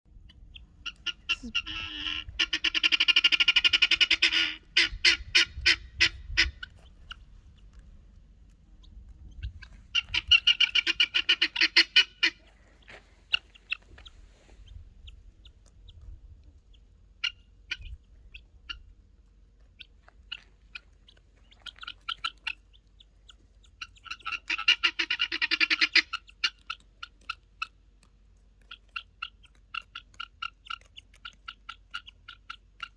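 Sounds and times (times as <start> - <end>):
guinea fowl harsh calls: 0.5 - 7.2, 9.4 - 14.8, 17.2 - 18.9, 21.4 - 22.7, 23.8 - 27.7.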